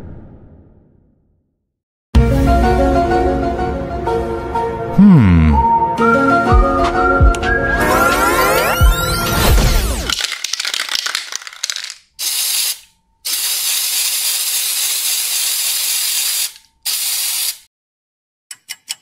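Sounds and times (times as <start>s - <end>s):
spray can rattling: 10.1s - 17.6s
spray can hissing: 10.2s - 17.7s.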